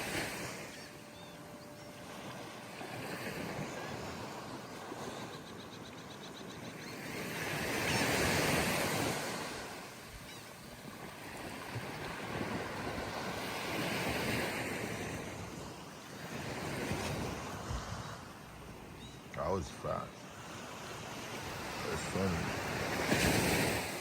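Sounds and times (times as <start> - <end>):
ocean surf washing onto beach: 19.3 - 24.0.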